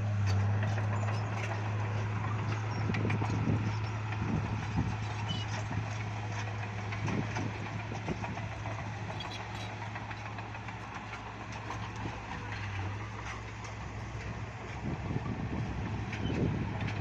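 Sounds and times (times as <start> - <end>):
bulldozer diesel engine humming: 0.0 - 17.0.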